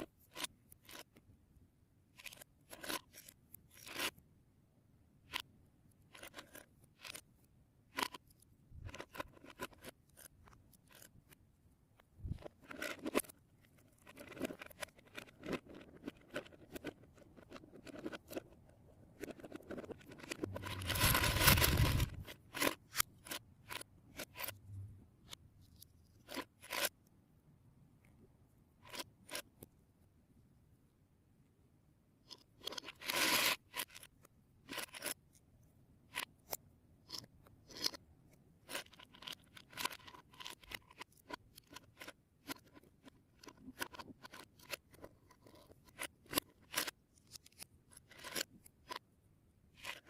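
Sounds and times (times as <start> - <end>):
plastic pieces rattling: 19.4 - 22.8.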